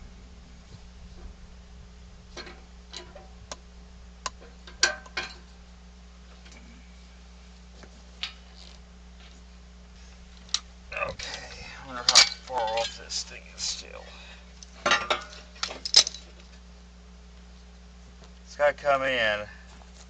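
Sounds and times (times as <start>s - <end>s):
steady low hum: 0.0s - 20.0s
metal equipment clicks and clanks: 12.0s - 13.1s, 15.0s - 16.3s.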